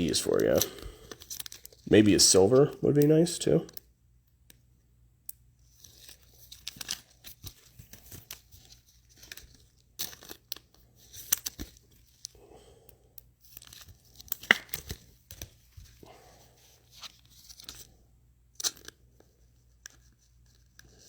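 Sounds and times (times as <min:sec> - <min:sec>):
foil wrapper tearing and crinkling: 0:00.5 - 0:01.8, 0:05.8 - 0:11.9.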